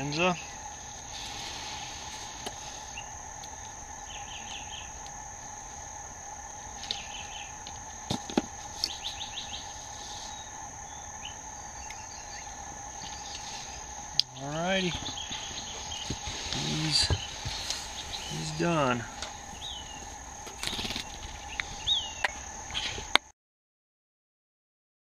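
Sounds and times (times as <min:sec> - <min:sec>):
crickets trilling: 0:00.0 - 0:23.3
rapid chirps: 0:08.6 - 0:23.1.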